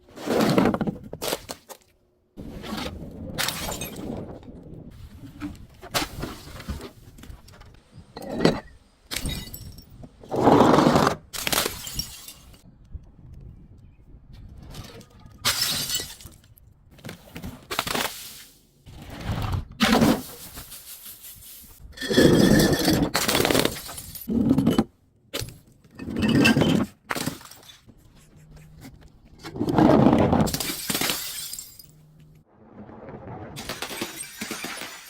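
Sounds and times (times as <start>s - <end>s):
glass bottles shattering: 11.4s - 12.6s, 15.4s - 16.4s, 22.0s - 24.5s, 30.5s - 32.1s, 33.6s - 35.0s.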